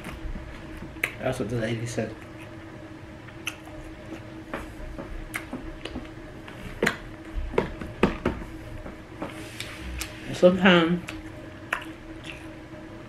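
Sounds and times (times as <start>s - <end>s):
faint steady hum: 0.0s - 13.0s
wet chewing clicks and smacks: 3.3s - 4.3s, 5.3s - 6.1s, 11.0s - 12.5s.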